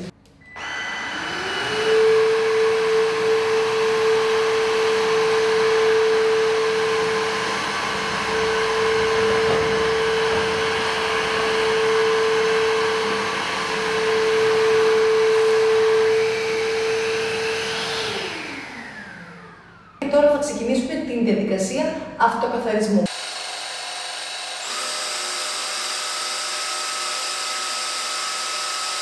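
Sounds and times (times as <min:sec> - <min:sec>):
vacuum mop motor humming: 0:00.0 - 0:20.0, 0:23.1 - 0:29.0.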